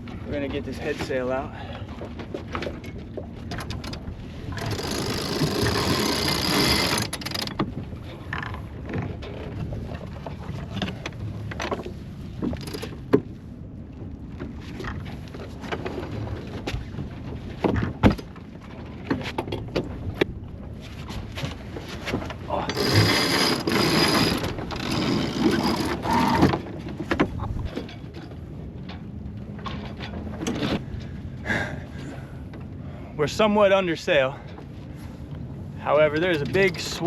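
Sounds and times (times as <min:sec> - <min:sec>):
lines and winch clicking: 0:03.5 - 0:08.5, 0:12.4 - 0:13.0, 0:22.6 - 0:26.7
rush of sail unfurling: 0:03.6 - 0:07.6, 0:20.8 - 0:26.7.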